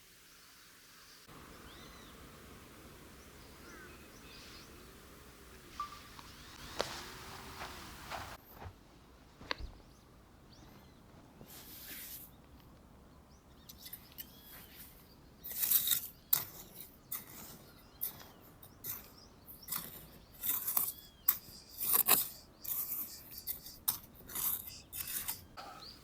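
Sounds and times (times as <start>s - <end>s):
bird whistling: 5.8s - 6.6s
scraping or rustling noises: 6.0s - 9.8s.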